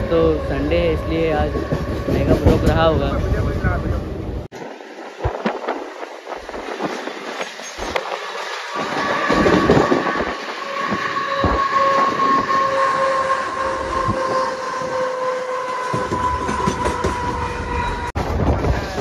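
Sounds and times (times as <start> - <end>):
train wheels clattering over rail joints: 15.8 - 19.0.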